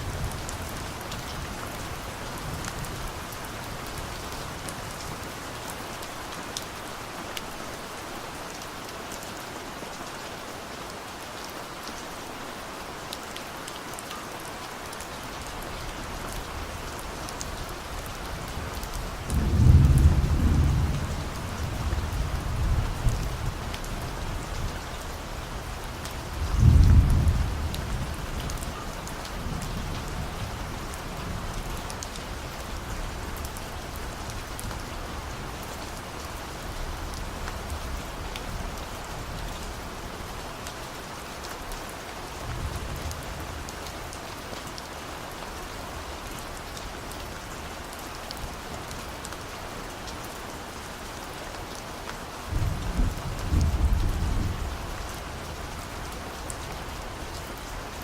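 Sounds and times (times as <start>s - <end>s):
steady rain falling: 0.0s - 58.0s
distant thunder rumbling: 19.3s - 23.6s.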